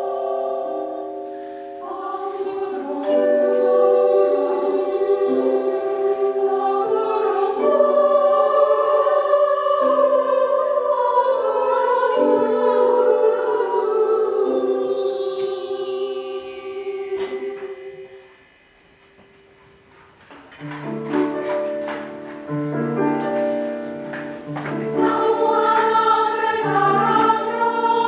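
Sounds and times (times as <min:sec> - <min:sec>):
choir singing sustained chords: 0:00.0 - 0:19.2, 0:24.8 - 0:28.0
high chimes shimmer: 0:14.4 - 0:20.1.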